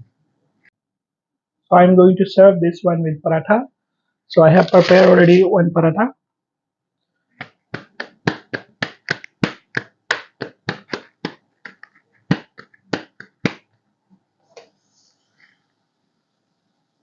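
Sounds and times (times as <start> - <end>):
hands clapping a flatbread: 4.6 - 5.4, 7.4 - 13.7.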